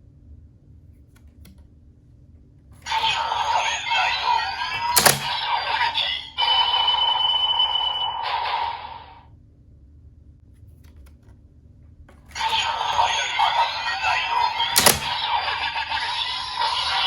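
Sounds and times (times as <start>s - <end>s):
toy electronic voice and effects: 2.9s - 9.2s, 12.4s - 17.0s.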